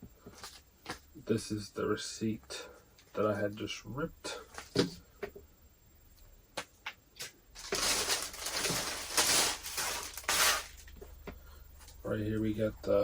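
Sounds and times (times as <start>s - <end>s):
packaging crinkling: 7.6s - 10.9s.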